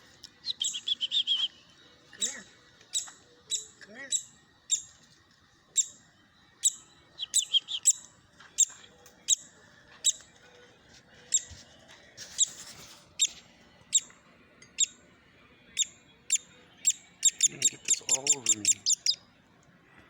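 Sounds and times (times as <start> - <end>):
baby woodpecker begging calls: 0.4 - 1.6, 2.2 - 4.9, 6.6 - 8.7, 15.8 - 19.2.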